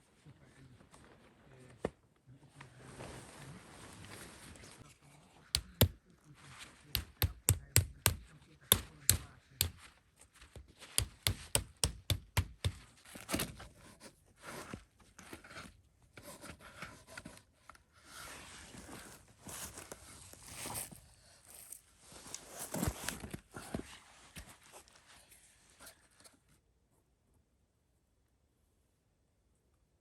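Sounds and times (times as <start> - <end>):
knife chopping knocks: 5.6 - 6.0, 7.0 - 9.8, 11.0 - 12.8.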